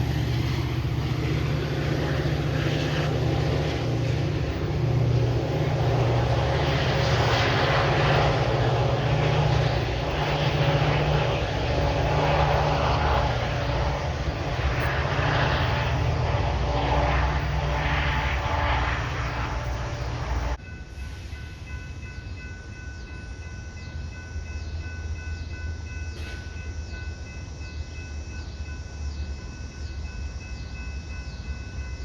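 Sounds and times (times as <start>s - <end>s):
rushing wavering noise: 0.0s - 22.0s
train diesel engine drone: 0.0s - 32.0s.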